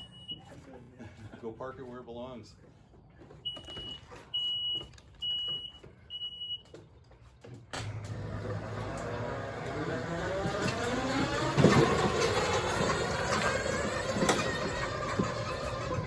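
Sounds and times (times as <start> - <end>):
electric mower motors whining: 7.7 - 16.0.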